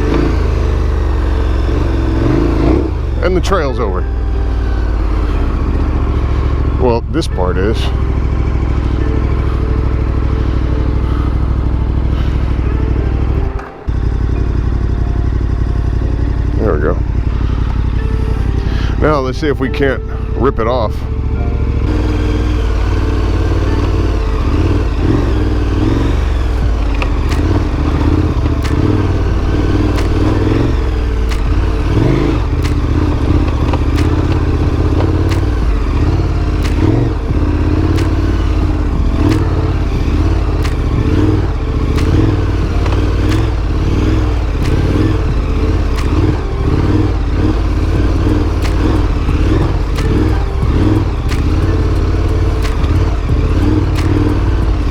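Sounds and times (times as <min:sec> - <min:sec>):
motorcycle engine running under load: 0:00.0 - 0:54.9
sharp clicks and clatter: 0:21.9 - 0:54.9.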